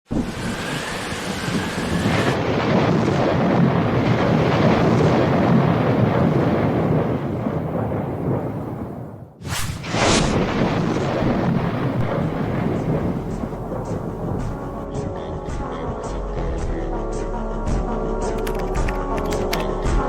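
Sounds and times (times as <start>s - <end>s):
deep thunder-like rumble: 0.1s - 15.4s.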